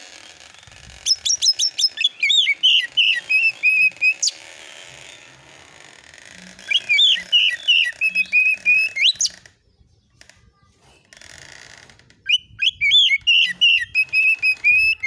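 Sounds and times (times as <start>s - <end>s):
bird whistled song: 1.0s - 4.4s, 6.6s - 9.9s, 12.3s - 15.0s.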